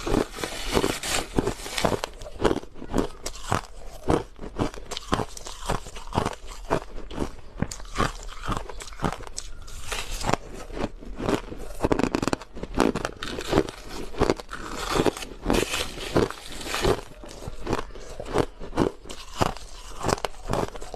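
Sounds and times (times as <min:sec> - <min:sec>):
ice being crunched by teeth: 0:00.0 - 0:20.9.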